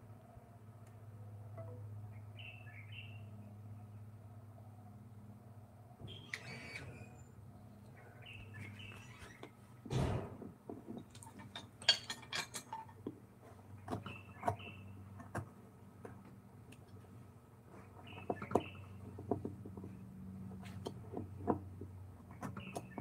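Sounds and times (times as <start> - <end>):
small birds chirping: 2.1 - 4.0, 6.0 - 9.6, 13.8 - 15.3, 17.8 - 20.0, 22.3 - 23.0.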